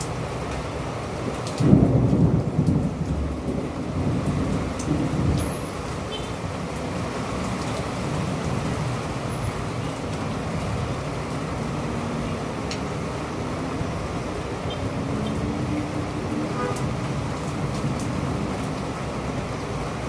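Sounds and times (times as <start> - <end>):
city traffic rumble: 0.0 - 20.0
thunder roll: 1.6 - 5.5.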